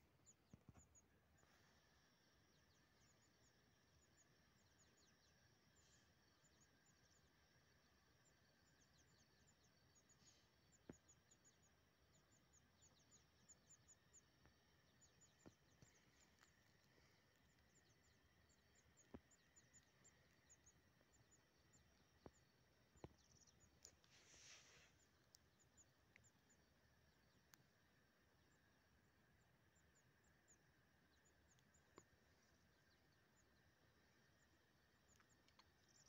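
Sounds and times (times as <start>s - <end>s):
small birds chirping: 0.0s - 36.0s
faint sharp clicks: 15.4s - 17.9s, 22.2s - 24.3s, 24.9s - 26.6s, 27.4s - 27.7s, 31.5s - 32.2s, 35.0s - 36.0s
soft rustle: 23.8s - 25.4s.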